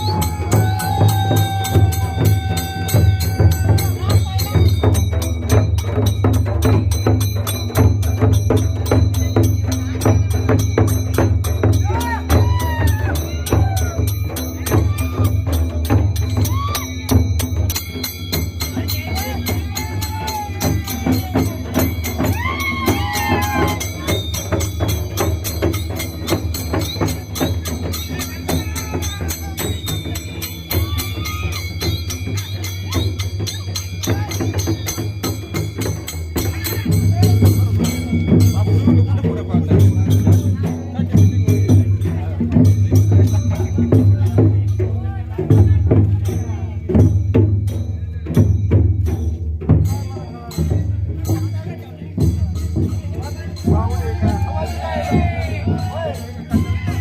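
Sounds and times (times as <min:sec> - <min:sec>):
voices calling out: 0:00.0 - 0:04.9, 0:11.8 - 0:42.6, 0:51.2 - 0:57.0
fast festival drumming: 0:00.0 - 0:57.0
jingling metal percussion: 0:00.0 - 0:57.0.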